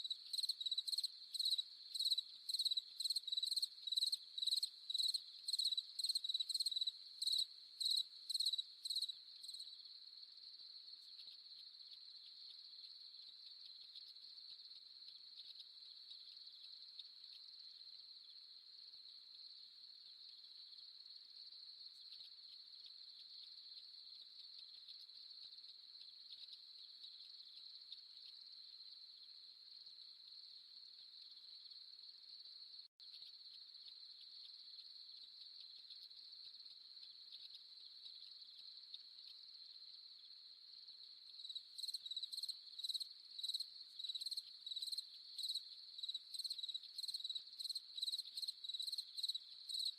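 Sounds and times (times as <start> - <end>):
crickets trilling: 0.0 - 9.8, 33.2 - 49.9.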